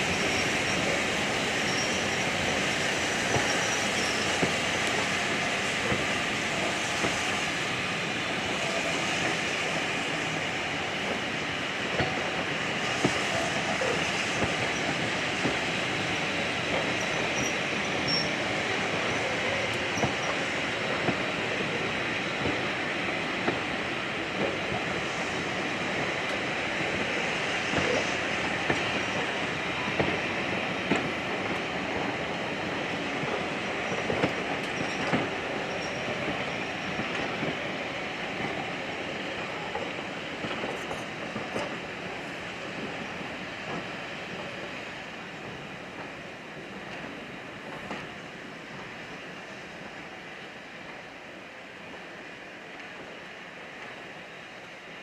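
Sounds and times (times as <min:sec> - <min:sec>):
train rumble: 0:00.0 - 0:55.0
train wheels clicking on rails: 0:00.0 - 0:55.0.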